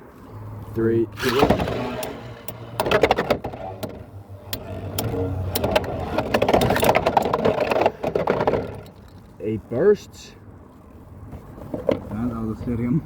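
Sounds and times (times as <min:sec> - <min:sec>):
spinning tops whirring: 0:01.2 - 0:06.3.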